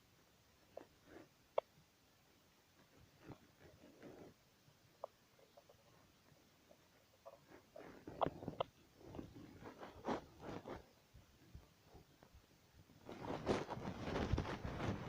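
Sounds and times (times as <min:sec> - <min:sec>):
rustles and clicks: 0:06.8 - 0:12.4, 0:13.0 - 0:15.0.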